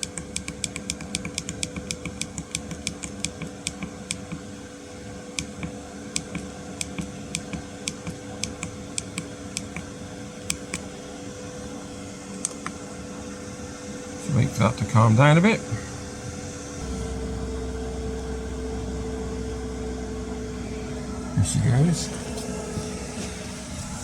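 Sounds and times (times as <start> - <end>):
fuel pump ticking: 0.0 - 4.4, 5.4 - 9.9, 16.8 - 23.6
heater fan humming: 0.0 - 24.0.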